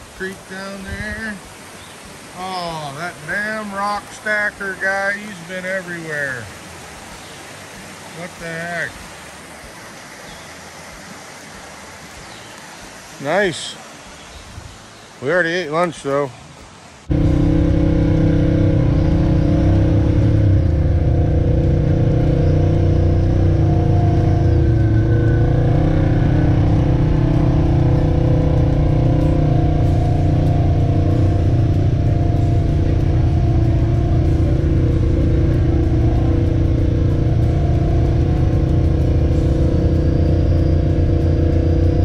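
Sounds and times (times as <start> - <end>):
vehicle engine running: 17.1 - 42.0.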